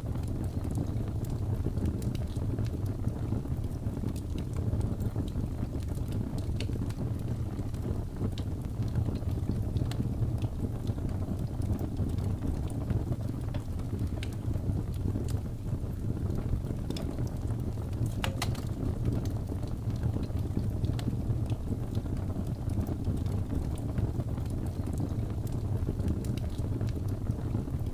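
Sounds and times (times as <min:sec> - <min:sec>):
wood fire crackling: 0:00.0 - 0:27.9.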